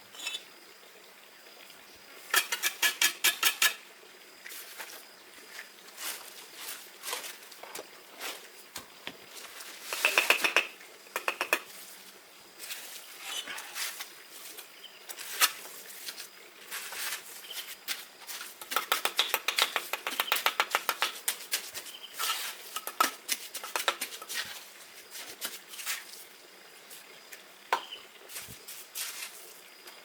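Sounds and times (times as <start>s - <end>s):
bricklaying taps and clicks: 9.8s - 11.7s, 18.5s - 21.9s, 22.7s - 24.4s.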